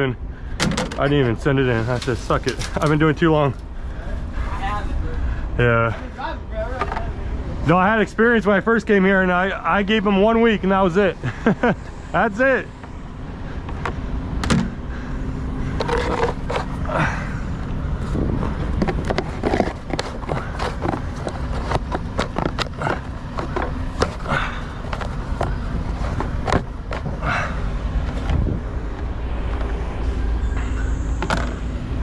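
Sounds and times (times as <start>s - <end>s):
engine idling: 0.0s - 32.0s
clicks knocks and scrapes: 15.8s - 16.7s, 18.4s - 24.3s.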